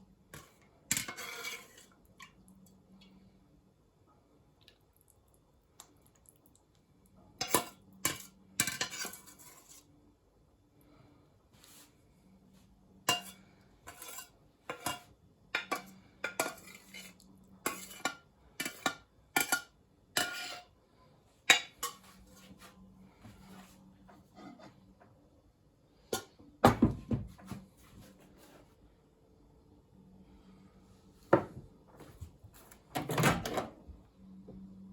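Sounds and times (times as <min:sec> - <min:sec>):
dishes clattering: 0:13.1 - 0:16.9.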